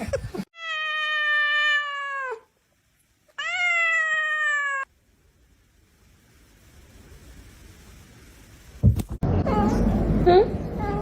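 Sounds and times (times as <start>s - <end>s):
cat meowing: 0.6s - 2.5s, 3.3s - 4.9s.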